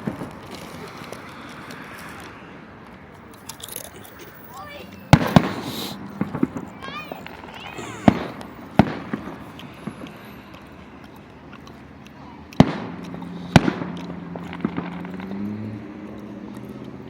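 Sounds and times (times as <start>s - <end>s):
firework pops and crackles: 0.0s - 2.4s, 5.0s - 10.2s, 12.5s - 17.0s
firework booms: 5.1s - 6.7s, 8.0s - 9.4s.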